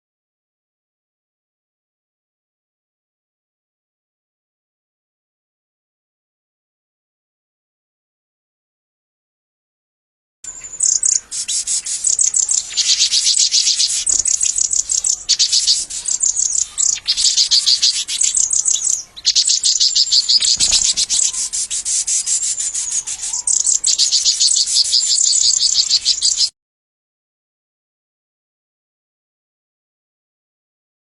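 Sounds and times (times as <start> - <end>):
small birds chirping: 10.5 - 26.5.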